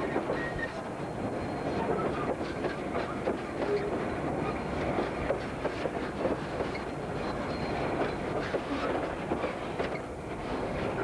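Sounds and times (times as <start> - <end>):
train wheels clacking over rail joints: 0.0 - 0.8, 1.5 - 11.0.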